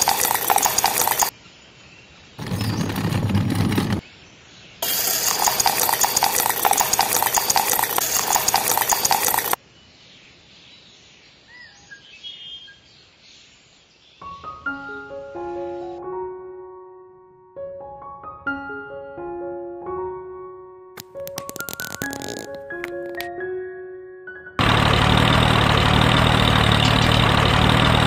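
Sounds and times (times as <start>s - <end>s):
piano music: 14.3s - 24.6s
wet concrete pouring and scraping: 21.0s - 23.3s.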